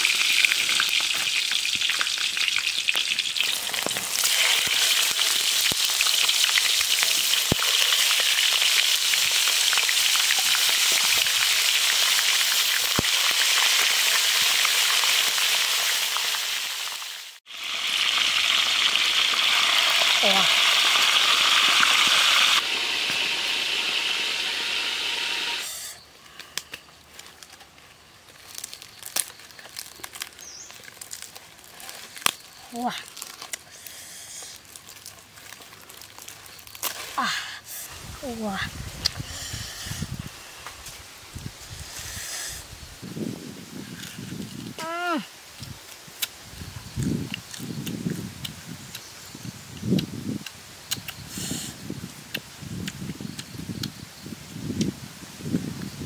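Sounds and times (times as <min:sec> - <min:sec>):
chicken sizzling in oil: 0:00.0 - 0:26.0.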